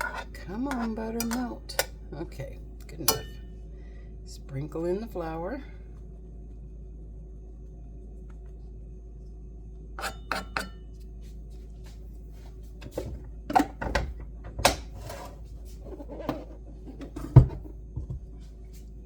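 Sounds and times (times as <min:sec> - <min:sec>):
kitchen utensils clinking: 0:03.0 - 0:03.4, 0:10.0 - 0:10.8.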